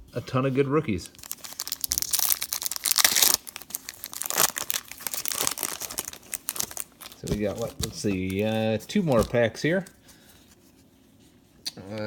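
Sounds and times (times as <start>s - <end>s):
foil wrapper crinkling and tearing: 1.0s - 10.0s.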